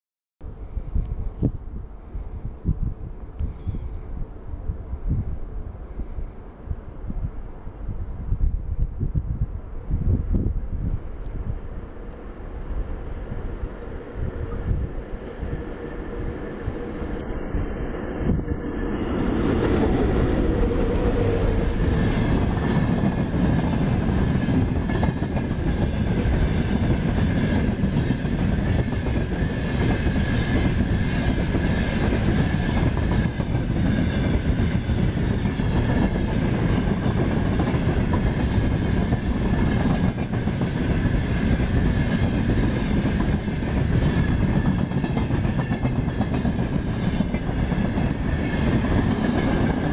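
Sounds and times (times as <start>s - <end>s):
freight train wagons rumbling: 18.2s - 49.9s.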